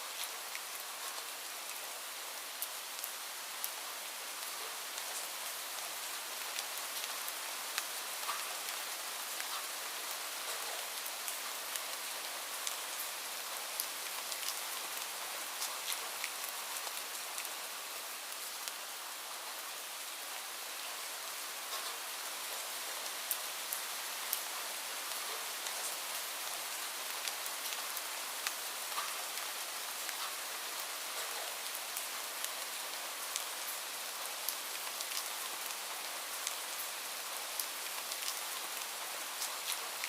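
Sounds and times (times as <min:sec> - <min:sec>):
steady rainfall: 0:00.0 - 0:40.0
raindrops ticking on a surface: 0:00.1 - 0:40.0.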